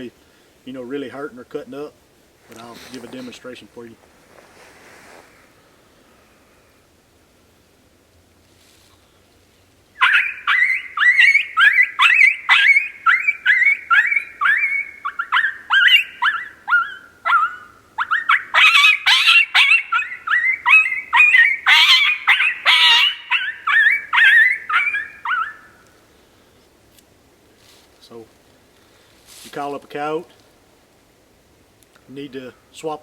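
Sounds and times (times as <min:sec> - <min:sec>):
predator call high-pitched yelps: 0:10.0 - 0:25.7.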